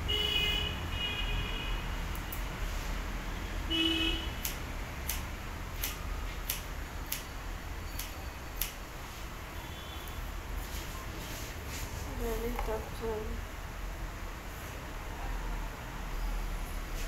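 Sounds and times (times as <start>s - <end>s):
scissors snipping hair: 4.4s - 7.3s, 8.0s - 8.8s.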